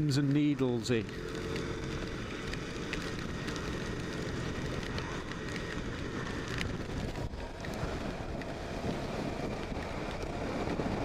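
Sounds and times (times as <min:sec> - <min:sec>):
motorcycle engine running: 0:00.0 - 0:11.0
wind rushing over microphone: 0:01.0 - 0:11.0.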